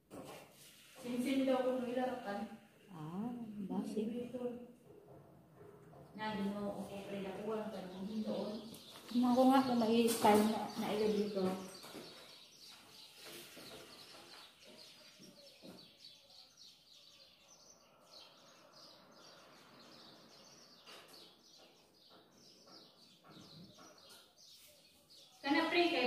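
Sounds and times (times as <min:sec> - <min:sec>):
faint bird chirps: 0:07.0 - 0:25.9.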